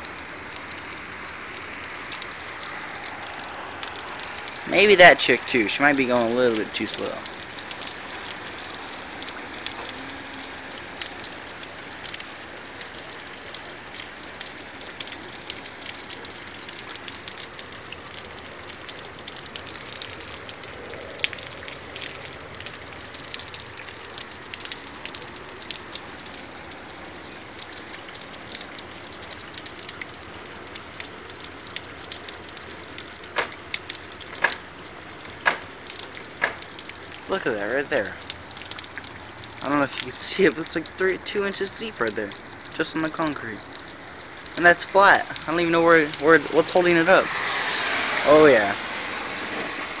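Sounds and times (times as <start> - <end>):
heavy rain falling: 0.0 - 50.0
running water: 0.0 - 50.0
sharp ticks: 30.8 - 37.0.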